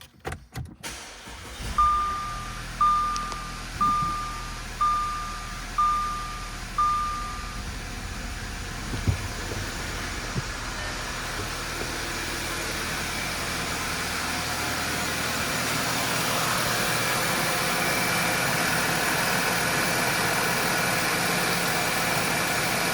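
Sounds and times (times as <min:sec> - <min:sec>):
car engine idling: 0:00.8 - 0:22.9
electronic warning beeps: 0:01.7 - 0:07.8, 0:10.6 - 0:11.6.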